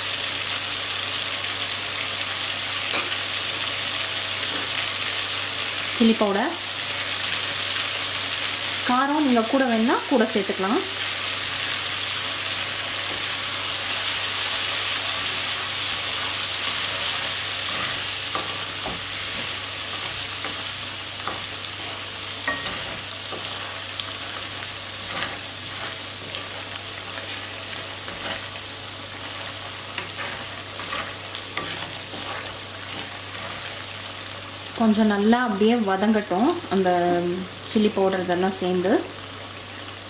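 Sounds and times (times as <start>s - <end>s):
food sizzling in hot oil: 0.0s - 40.0s
spatula tapping pan: 22.4s - 23.6s.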